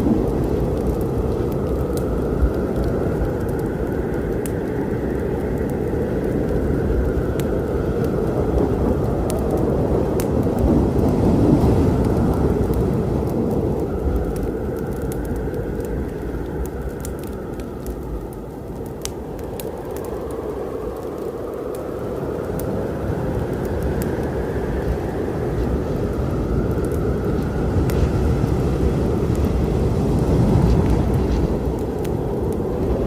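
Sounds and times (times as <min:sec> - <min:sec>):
steady rain: 0:00.0 - 0:33.0
wood fire crackling: 0:00.0 - 0:33.0
rolling thunder: 0:08.2 - 0:15.8.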